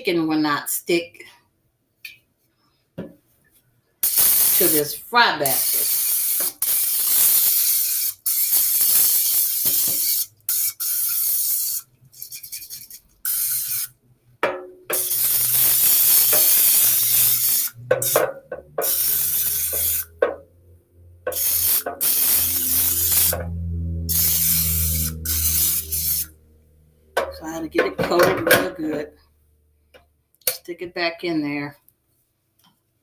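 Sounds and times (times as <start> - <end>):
aerosol spray hissing: 4.0 - 11.8, 13.3 - 13.9, 14.9 - 20.2, 21.3 - 23.4, 24.1 - 26.3.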